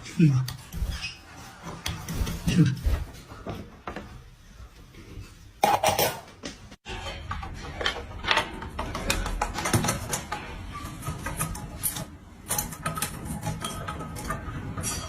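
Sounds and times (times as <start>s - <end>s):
irregular clicking and tapping: 6.4s - 14.0s.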